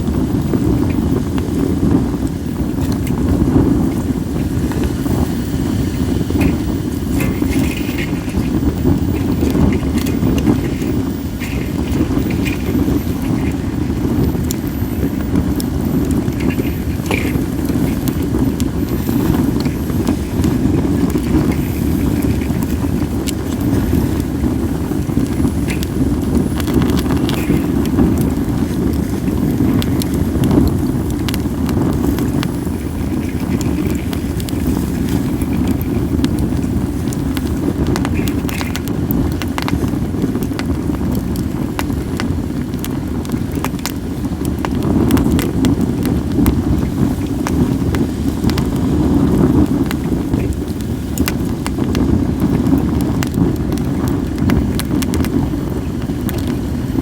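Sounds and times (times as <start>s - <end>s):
low rumble of flames: 0.0s - 57.0s
wind on microphone: 0.0s - 57.0s
wood fire crackling and popping: 0.0s - 57.0s.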